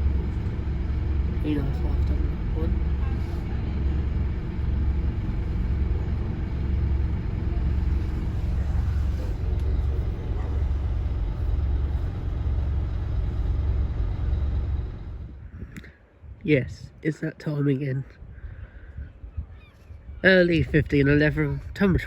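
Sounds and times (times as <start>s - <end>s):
diesel engine idling: 0.0s - 15.9s.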